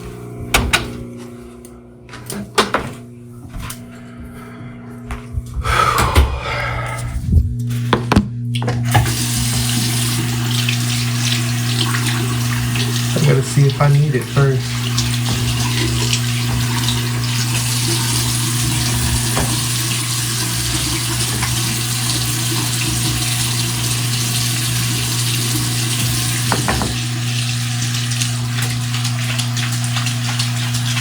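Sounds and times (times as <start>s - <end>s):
steady low hum: 0.0s - 9.0s
water running from a tap: 8.6s - 31.0s.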